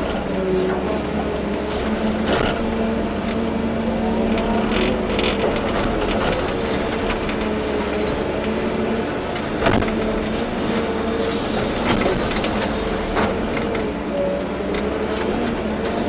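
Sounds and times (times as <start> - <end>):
excavator diesel engine under load: 0.0 - 16.0
knocks and rattles: 2.0 - 10.9.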